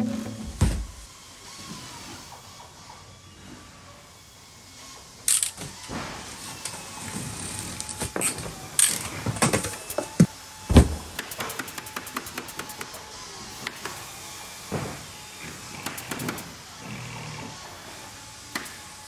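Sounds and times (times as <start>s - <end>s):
heavy thump: 0.0s - 1.0s.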